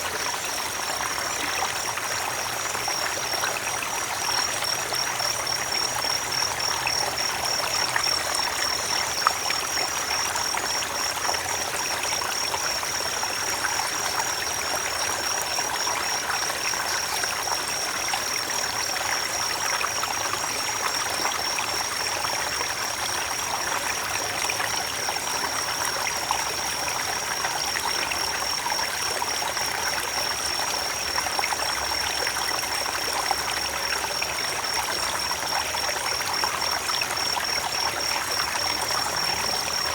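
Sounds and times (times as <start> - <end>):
creek flowing over rocks: 0.0 - 39.9.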